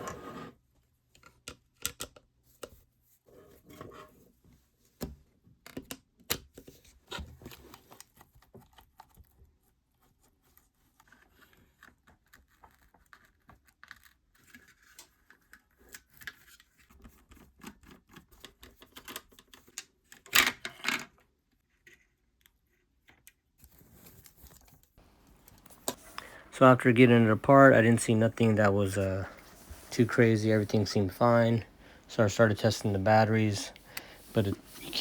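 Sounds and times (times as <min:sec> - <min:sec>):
plastic parts clicking and scraping: 0:23.1 - 0:26.5.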